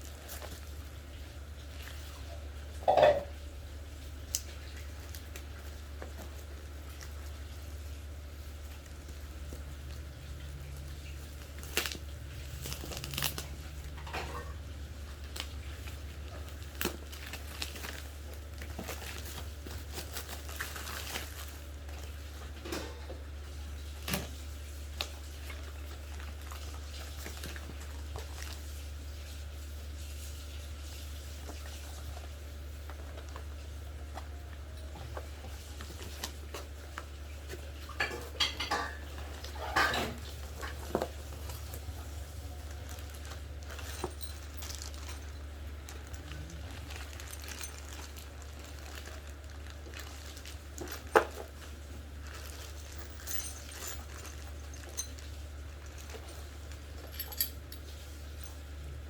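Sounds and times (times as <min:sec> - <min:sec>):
metal parts clinking: 0:52.6 - 0:55.2, 0:56.9 - 0:57.8.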